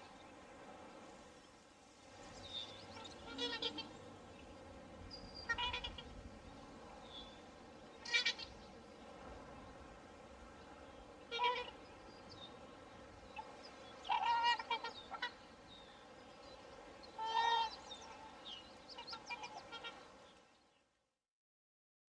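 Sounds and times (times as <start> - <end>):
background hiss: 0.0 - 21.0
swans honking: 2.9 - 4.2, 5.4 - 6.2, 8.0 - 8.6, 11.2 - 11.8, 13.4 - 15.5, 17.1 - 20.1.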